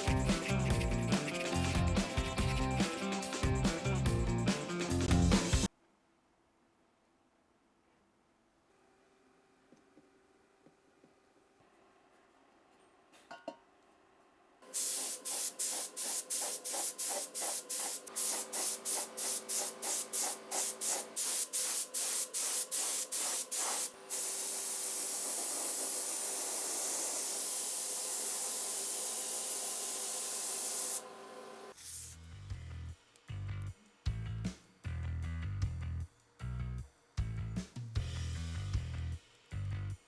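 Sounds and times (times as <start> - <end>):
spray paint hissing: 0.0 - 5.7, 14.7 - 31.0.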